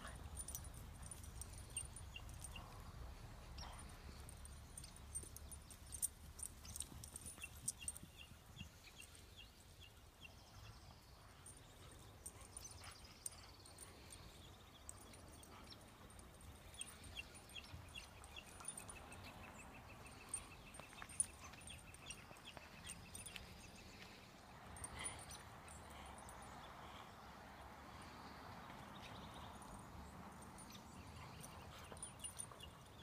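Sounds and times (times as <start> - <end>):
bird chirping: 3.5 - 24.1.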